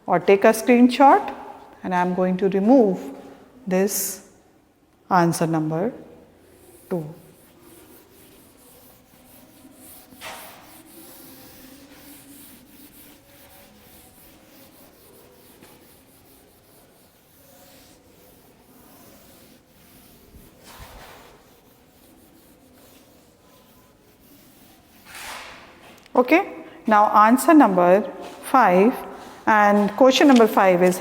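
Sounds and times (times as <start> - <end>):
rubbing against a board: 6.4 - 26.0
swish on a board: 9.4 - 13.8, 18.9 - 21.4.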